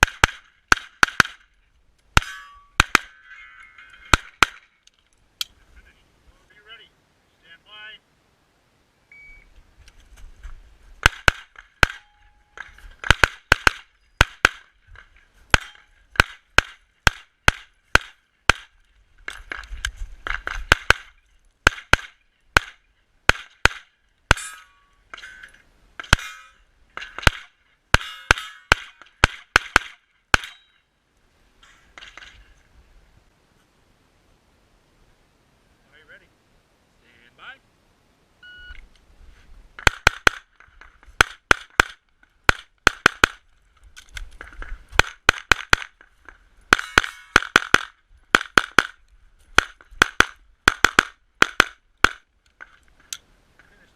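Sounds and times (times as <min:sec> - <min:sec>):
pistol shots: 0:11.0 - 0:12.1, 0:13.0 - 0:14.7, 0:49.6 - 0:52.2.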